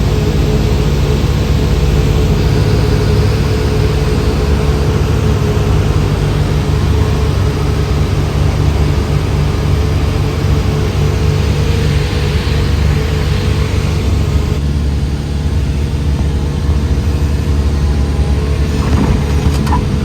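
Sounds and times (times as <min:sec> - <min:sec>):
propeller plane engine drone: 0:00.0 - 0:20.0.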